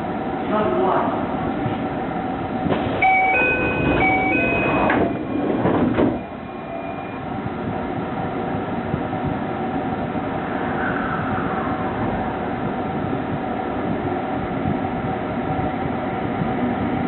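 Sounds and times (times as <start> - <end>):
train carriage rumble: 0.0 - 17.0
two-note train door chime: 3.0 - 7.2.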